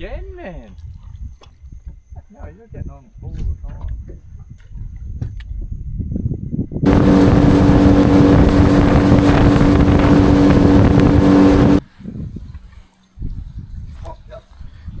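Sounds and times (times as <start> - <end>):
outboard motor running: 6.9 - 11.8
wind on microphone: 6.9 - 11.8.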